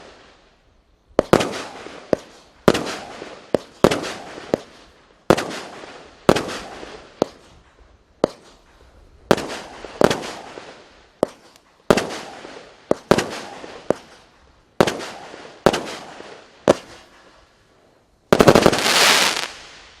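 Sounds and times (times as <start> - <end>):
firework bangs: 1.2 - 7.6, 9.3 - 17.2, 18.3 - 20.0
firework crackling: 1.2 - 20.0.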